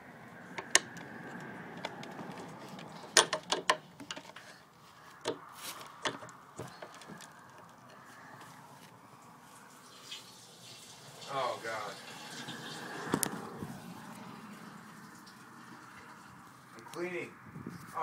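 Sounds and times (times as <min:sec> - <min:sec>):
sharp clicks and knocks: 0:00.5 - 0:04.4, 0:06.0 - 0:07.7.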